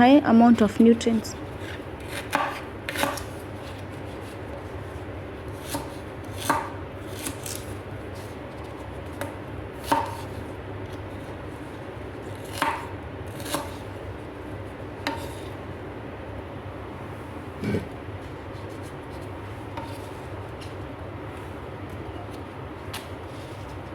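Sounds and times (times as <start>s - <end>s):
steady low hum: 0.0s - 23.9s
knife chopping on cutting board: 1.6s - 3.8s, 5.6s - 7.6s, 9.1s - 10.3s, 12.4s - 13.8s, 15.0s - 15.5s, 19.7s - 20.2s.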